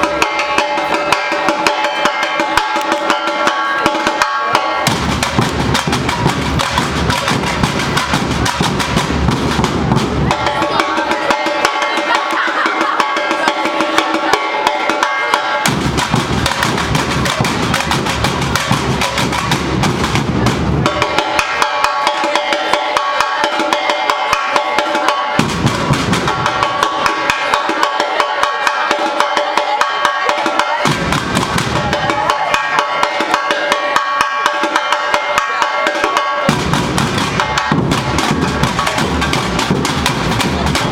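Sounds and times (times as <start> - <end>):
percussion band drumming: 0.0 - 40.9
rapid snare drumming: 0.0 - 40.9
deep bass drums: 4.9 - 10.4, 15.7 - 20.9, 36.5 - 40.9.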